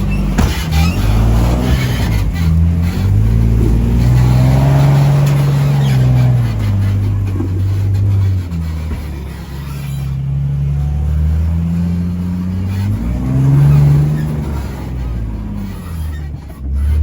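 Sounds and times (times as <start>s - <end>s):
off-road engine revving under load: 0.0s - 17.0s.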